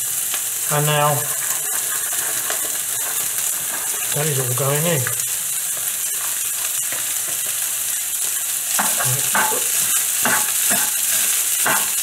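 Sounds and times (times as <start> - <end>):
food sizzling in a wok: 0.0 - 12.0
spoon scraping and stirring in wok: 1.2 - 4.2, 5.6 - 12.0.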